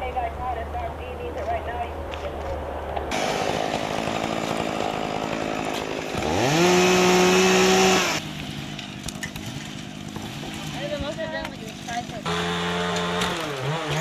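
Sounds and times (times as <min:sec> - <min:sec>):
chainsaw revving: 0:03.1 - 0:14.0.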